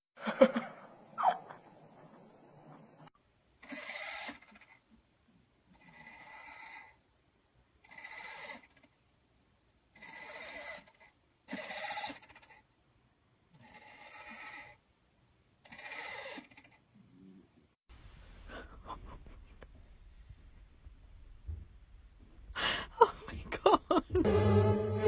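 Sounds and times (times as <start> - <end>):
animal bleating cries: 11.5 - 12.2, 15.7 - 16.6.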